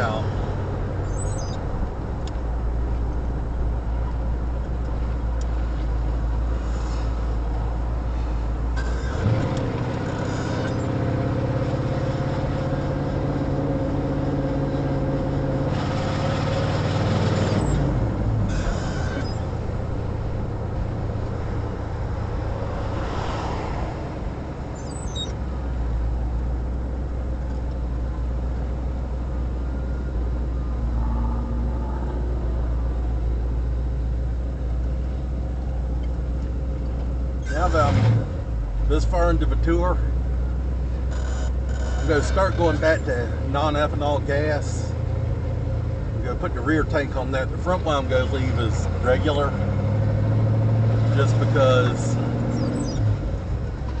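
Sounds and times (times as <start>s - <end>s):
car engine drone: 0.0s - 54.0s
road noise low hum: 0.0s - 54.0s.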